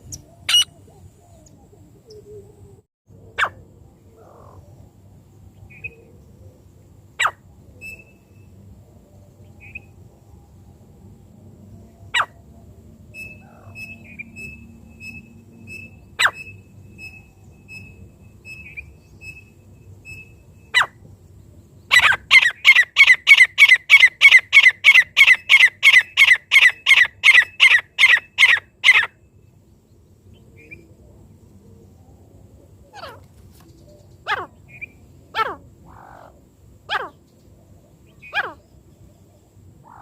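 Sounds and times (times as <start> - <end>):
francolin calling: 0.0 - 2.8, 7.2 - 8.6, 13.1 - 21.0, 21.9 - 29.3, 32.8 - 37.4, 38.0 - 40.0.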